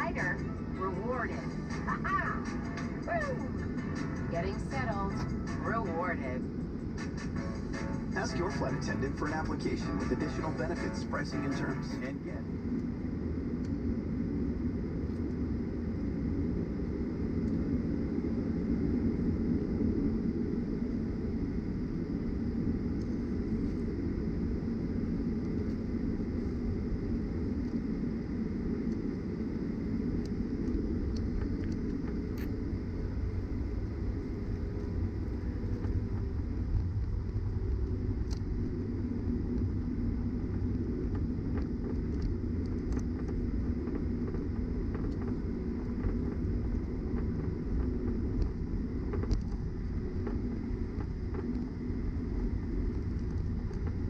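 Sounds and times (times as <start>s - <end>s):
aircraft cabin engine rumble: 0.0s - 54.0s.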